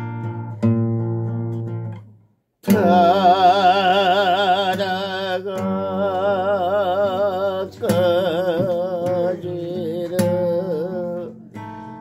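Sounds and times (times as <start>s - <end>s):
acoustic guitar chord strummed: 0.0s - 12.0s.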